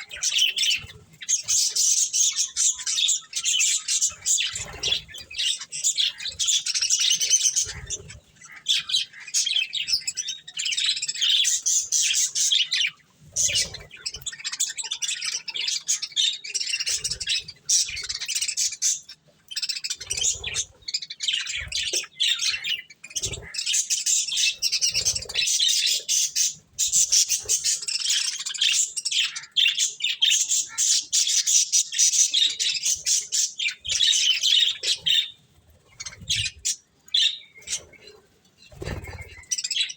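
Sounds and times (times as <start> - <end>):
budgerigars chattering and chirping: 0.0 - 39.9
harsh bird squawks: 0.0 - 39.9.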